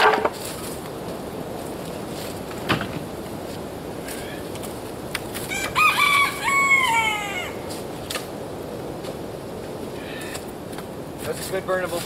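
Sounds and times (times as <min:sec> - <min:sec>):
firewood knocking: 0:00.0 - 0:00.6, 0:02.5 - 0:03.1
wind noise: 0:00.0 - 0:12.0
rooster crowing: 0:05.5 - 0:07.6.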